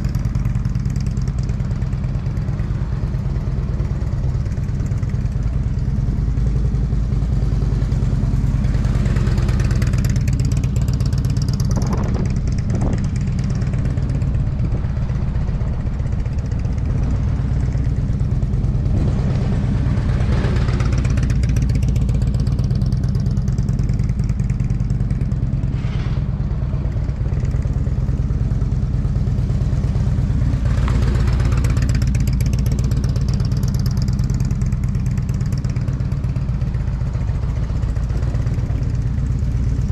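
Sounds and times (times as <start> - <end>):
motorcycle engine passing: 7.2 - 38.0
steady low rumble: 10.6 - 32.6.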